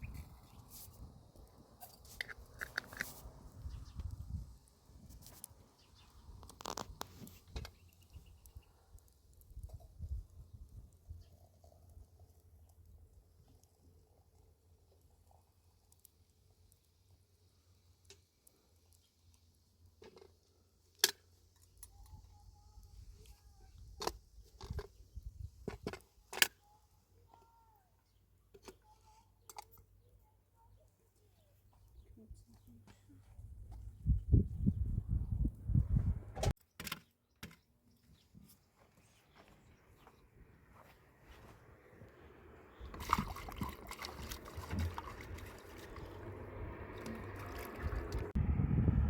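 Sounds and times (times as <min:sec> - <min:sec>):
small clicks and knocks: 0:01.4 - 0:03.2, 0:06.4 - 0:08.1, 0:18.0 - 0:22.2, 0:36.5 - 0:37.7
water trickling: 0:42.8 - 0:48.3.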